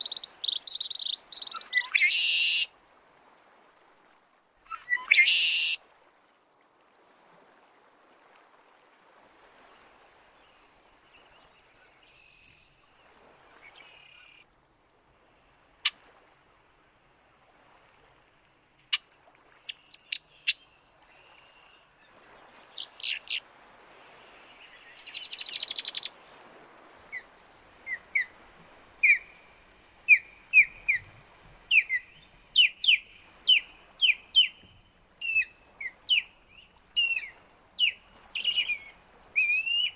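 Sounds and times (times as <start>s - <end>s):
wild birds calling: 0.0s - 2.7s, 10.6s - 14.4s, 24.4s - 26.4s, 27.0s - 39.9s.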